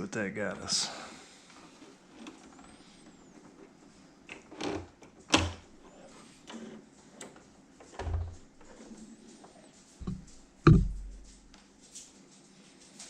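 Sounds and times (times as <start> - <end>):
knocks and clunks at sewing machine: 7.9 - 8.4, 10.0 - 11.2.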